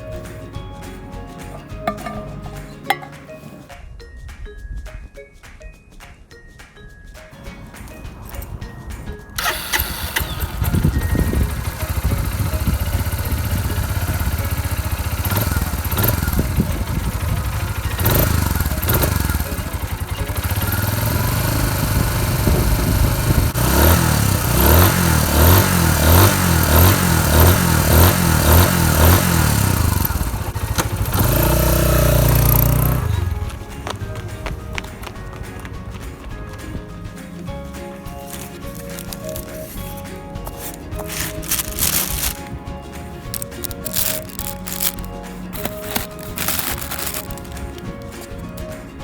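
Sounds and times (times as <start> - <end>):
motorcycle engine starting and revving: 9.4 - 34.3, 38.3 - 42.6, 43.3 - 48.7.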